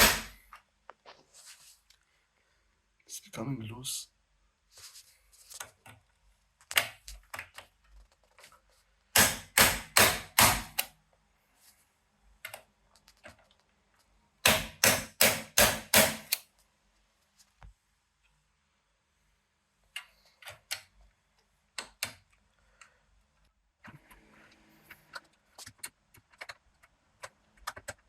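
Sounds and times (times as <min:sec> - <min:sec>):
mallet striking impact driver: 0:00.0 - 0:00.4, 0:09.2 - 0:10.8, 0:14.4 - 0:16.4.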